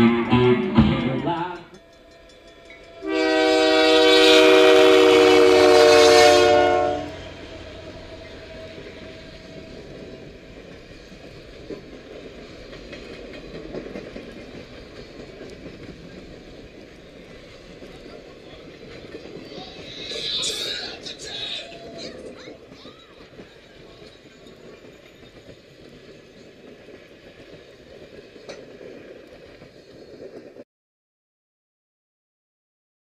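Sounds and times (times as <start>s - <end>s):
band music: 0.0s - 1.8s
locomotive air horn blast: 3.0s - 8.7s.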